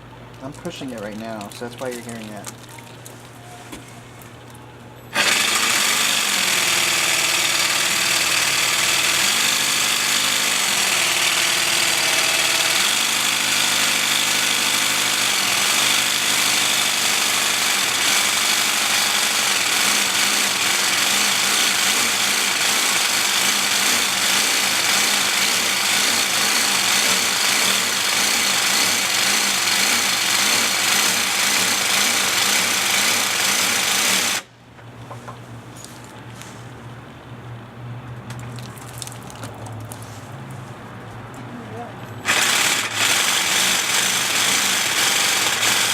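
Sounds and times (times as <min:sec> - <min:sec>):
jigsaw cutting ceramic tile: 0:05.1 - 0:34.4, 0:42.2 - 0:45.9.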